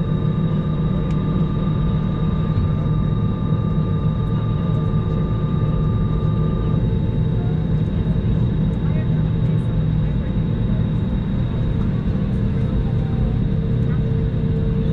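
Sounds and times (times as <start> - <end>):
aircraft cabin rumble and hum: 0.0 - 14.9.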